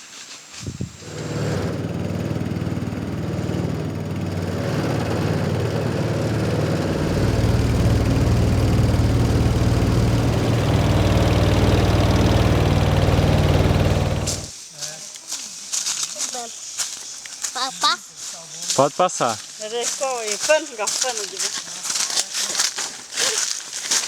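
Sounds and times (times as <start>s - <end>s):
small engine running: 0.9s - 14.5s.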